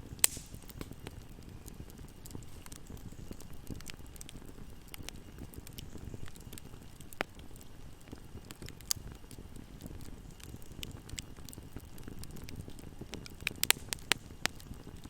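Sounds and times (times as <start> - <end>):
fire crackling in a fireplace: 0.0 - 15.0.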